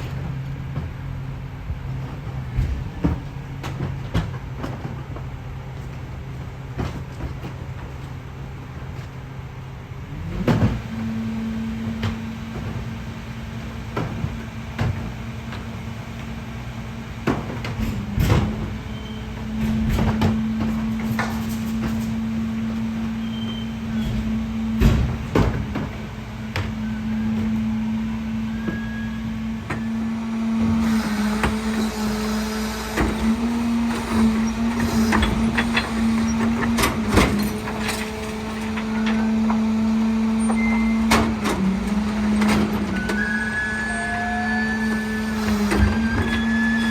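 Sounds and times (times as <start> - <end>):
garbage truck engine hum: 0.0 - 46.9
metal clanks and bangs: 23.8 - 27.7, 29.6 - 43.5.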